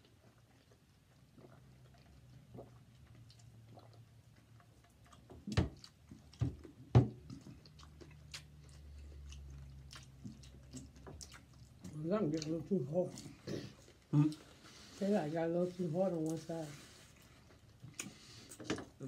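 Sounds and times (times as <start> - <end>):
crunchy chewing: 0.0 - 12.5.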